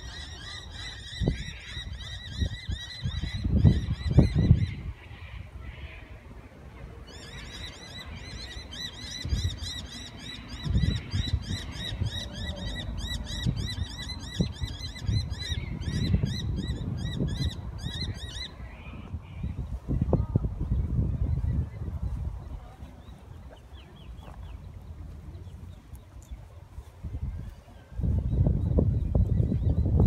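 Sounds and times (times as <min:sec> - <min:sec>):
low gusting rumble: 0:10.5 - 0:30.0.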